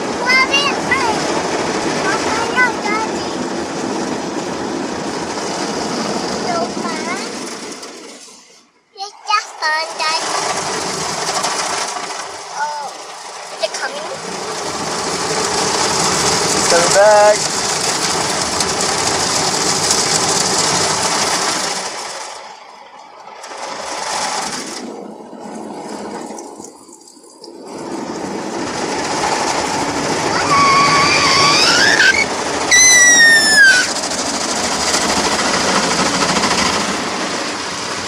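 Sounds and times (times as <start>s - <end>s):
car wash brushes and water spray: 0.0s - 38.0s
high-pitched squeal: 30.2s - 34.1s.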